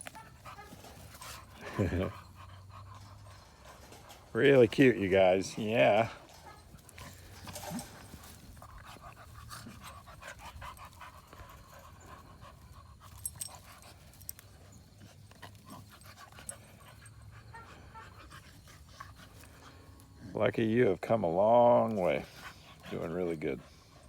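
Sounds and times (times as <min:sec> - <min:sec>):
dogs panting: 0:00.0 - 0:24.0
paws rustling in bedding: 0:05.1 - 0:16.6.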